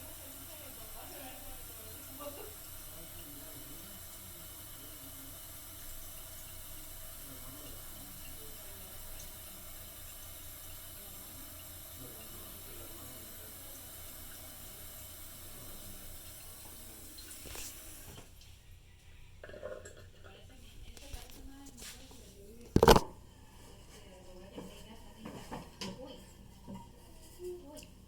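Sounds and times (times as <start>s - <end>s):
toilet tank refilling: 0.0s - 18.4s.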